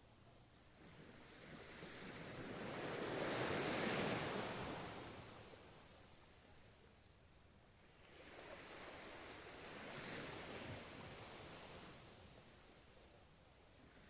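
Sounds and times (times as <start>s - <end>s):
ocean waves breaking on shore: 0.8s - 5.9s, 7.9s - 12.8s.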